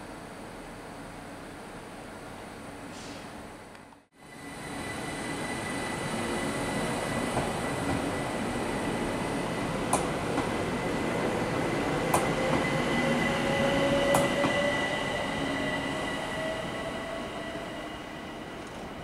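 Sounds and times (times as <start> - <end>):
electric train whining: 4.2 - 19.0.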